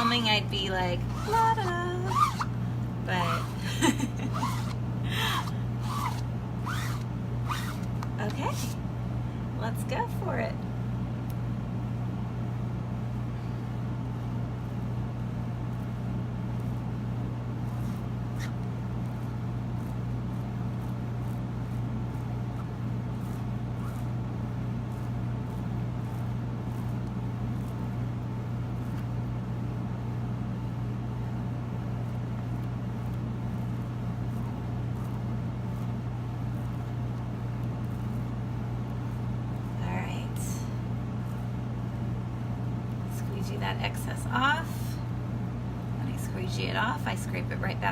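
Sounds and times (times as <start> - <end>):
low background hum: 0.0 - 47.9.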